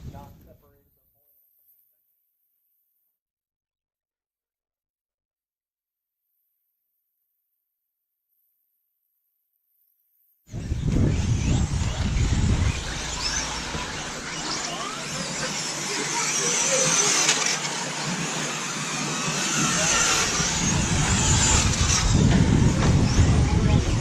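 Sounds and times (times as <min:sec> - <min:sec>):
rc truck motors whining: 0:10.5 - 0:24.0
low rumble: 0:10.6 - 0:15.5, 0:20.2 - 0:24.0.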